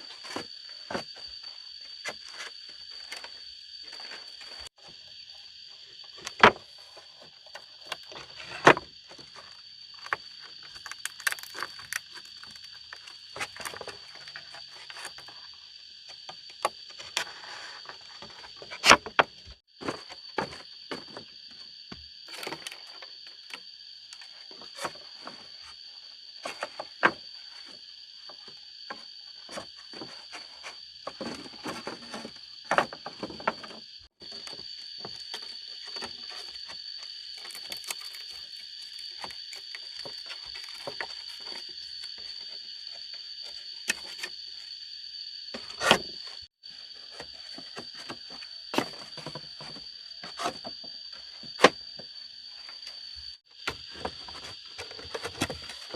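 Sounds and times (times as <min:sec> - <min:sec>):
high insect drone: 0:00.0 - 0:55.9.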